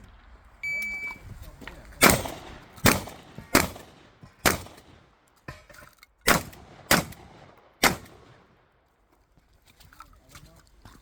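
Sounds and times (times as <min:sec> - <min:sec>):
shotgun shots: 0:02.0 - 0:05.2, 0:06.2 - 0:08.6.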